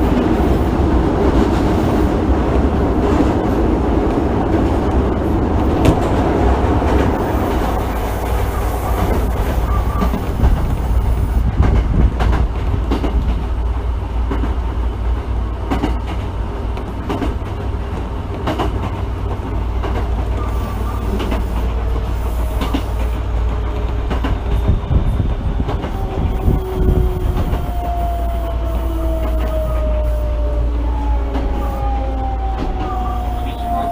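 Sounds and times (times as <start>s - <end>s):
subway car rumbling: 0.0s - 33.9s
wheels clicking over rail joints: 2.6s - 28.0s.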